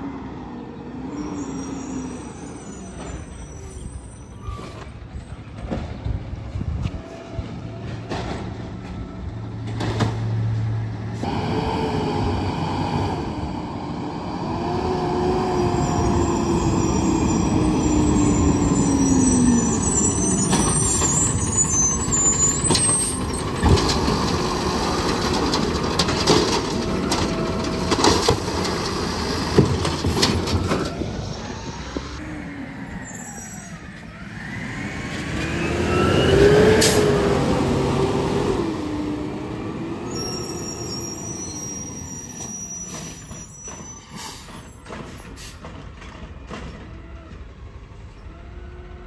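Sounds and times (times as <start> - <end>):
garbage truck whining: 7.4 - 49.0
knocks and clanks: 7.8 - 9.0, 22.6 - 31.1.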